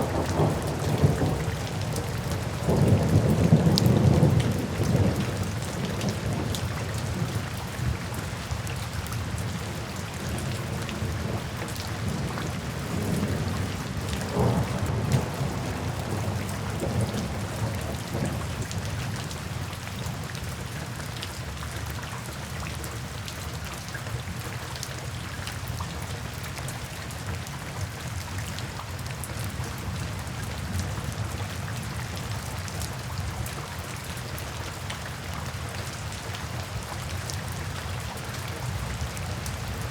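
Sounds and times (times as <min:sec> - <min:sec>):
rain falling into puddles: 0:00.0 - 0:39.9
thunder rumbling: 0:12.9 - 0:18.6.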